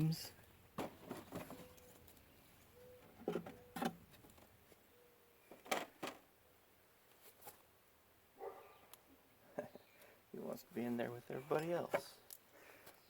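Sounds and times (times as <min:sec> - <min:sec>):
wooden frames knocking and scraping: 0:00.7 - 0:01.8, 0:03.0 - 0:04.6.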